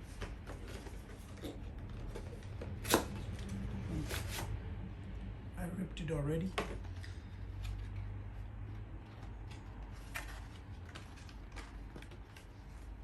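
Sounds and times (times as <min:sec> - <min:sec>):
hands handling packaging: 0:08.7 - 0:13.0.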